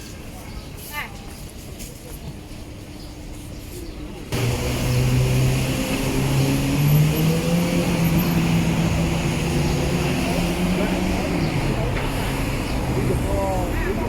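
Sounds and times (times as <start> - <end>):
vehicle engine humming: 4.3 - 14.0.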